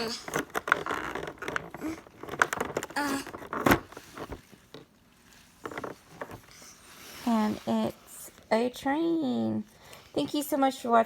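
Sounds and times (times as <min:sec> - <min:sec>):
cardboard and plastic handling: 0:00.0 - 0:08.6.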